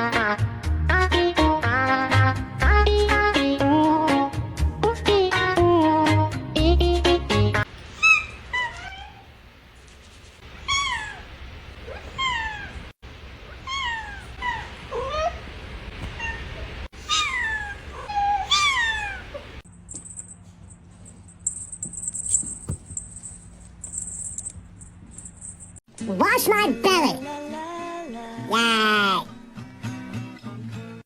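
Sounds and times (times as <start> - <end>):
cat meowing: 7.9 - 9.3, 10.6 - 19.6.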